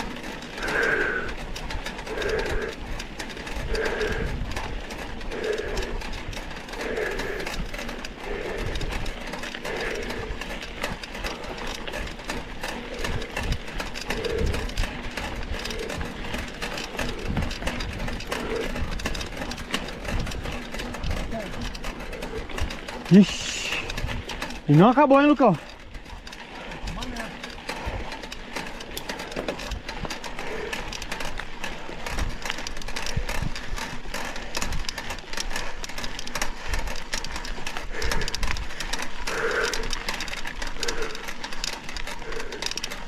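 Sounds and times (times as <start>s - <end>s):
bike tyre rumble: 0.0s - 43.0s
wind noise: 2.1s - 12.1s, 12.8s - 24.4s, 32.0s - 34.9s.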